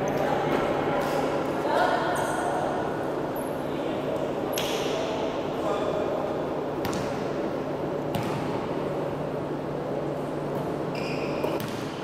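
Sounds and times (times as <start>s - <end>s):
short high squeaks: 10.9s - 11.6s.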